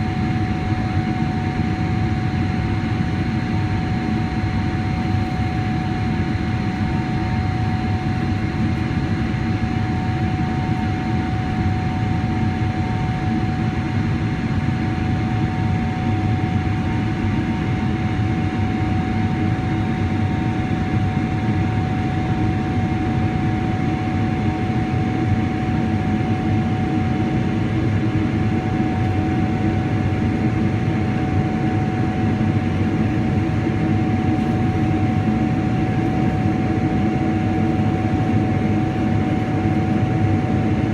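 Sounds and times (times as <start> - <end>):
jet cabin engine rumble: 0.0 - 40.9.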